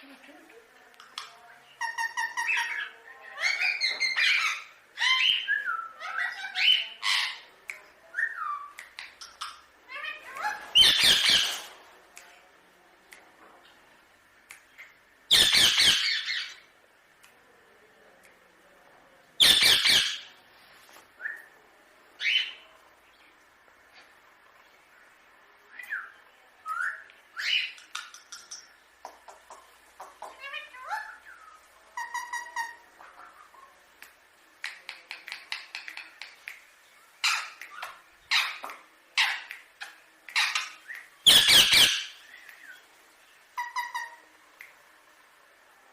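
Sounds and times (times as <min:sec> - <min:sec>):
parrot calling: 0:01.8 - 0:07.5, 0:08.3 - 0:11.7, 0:15.3 - 0:16.7, 0:19.4 - 0:20.3, 0:29.4 - 0:33.6, 0:37.1 - 0:42.8, 0:43.5 - 0:44.3
parakeet harsh squawk: 0:15.3 - 0:16.6, 0:19.4 - 0:20.3, 0:41.3 - 0:42.2
parrot harsh raspy calls: 0:15.3 - 0:16.6, 0:19.4 - 0:20.3, 0:37.2 - 0:42.3, 0:43.6 - 0:44.2
parrot clicking: 0:27.7 - 0:30.5, 0:34.0 - 0:36.7.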